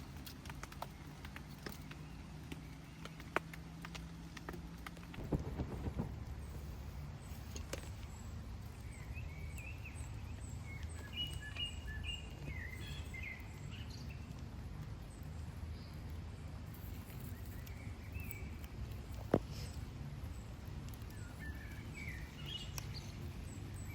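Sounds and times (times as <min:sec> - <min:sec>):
small birds chirping: 0:00.0 - 0:23.9
low rumble: 0:05.1 - 0:07.5.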